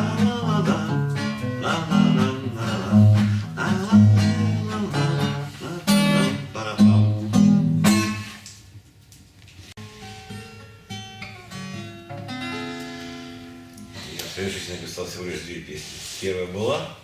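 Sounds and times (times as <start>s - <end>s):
acoustic guitar strumming: 0.0s - 8.5s, 9.8s - 14.7s.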